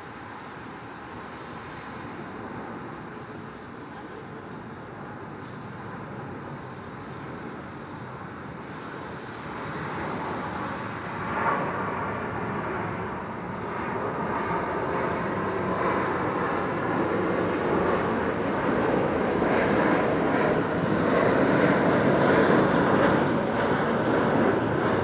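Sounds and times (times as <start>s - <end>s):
passing traffic rumble: 5.0s - 25.0s.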